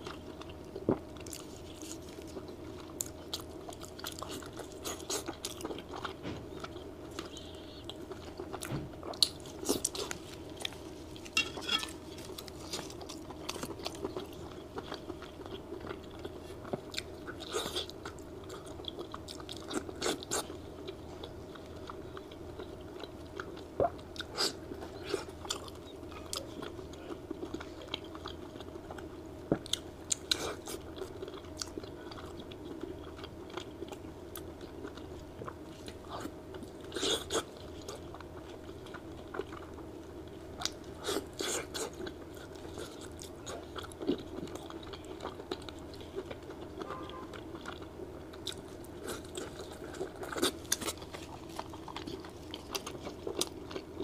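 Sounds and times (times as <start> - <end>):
steady low hum: 0.0 - 54.0
lettuce crunching: 1.2 - 20.6, 40.6 - 54.0.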